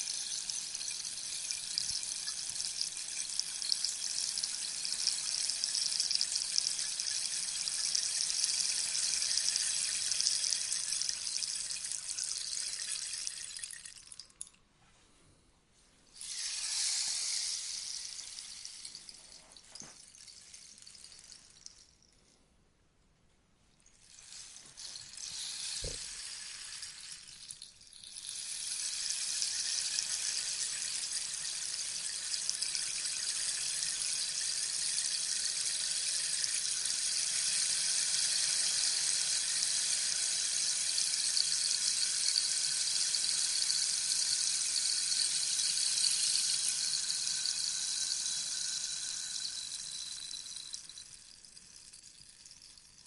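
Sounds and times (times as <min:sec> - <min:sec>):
rainstick trickling and rattling: 0:00.0 - 0:14.6, 0:16.2 - 0:22.4, 0:23.8 - 0:53.0.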